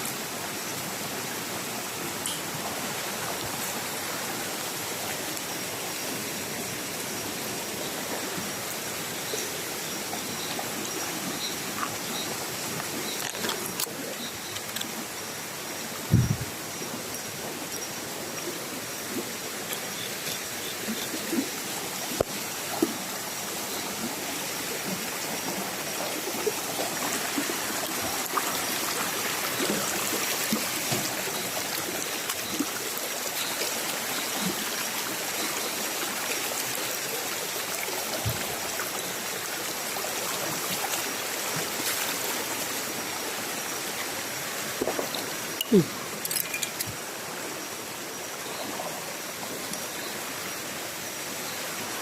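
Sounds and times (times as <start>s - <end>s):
stream water running: 0.0s - 52.0s
small knocks and splashes: 44.8s - 47.0s.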